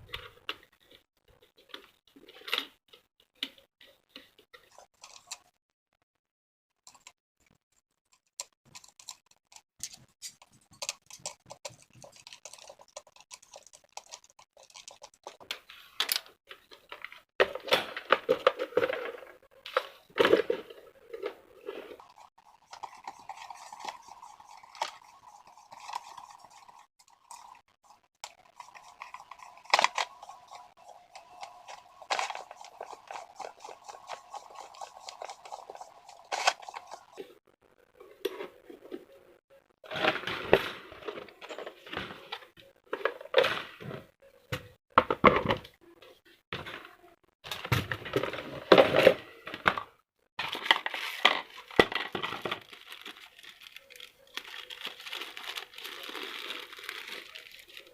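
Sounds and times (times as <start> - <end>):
rustling and crinkling: 9.2 - 37.4, 46.6 - 57.9.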